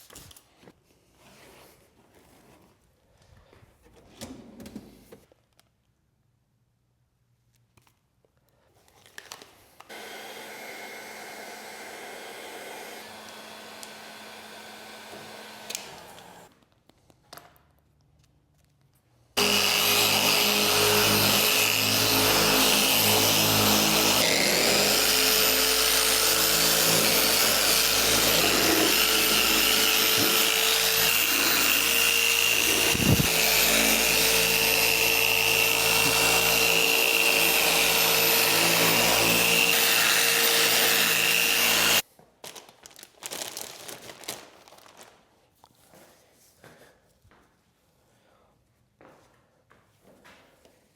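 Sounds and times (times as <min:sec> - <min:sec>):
loud motor-driven machine: 0:09.9 - 0:16.5, 0:19.4 - 0:42.0.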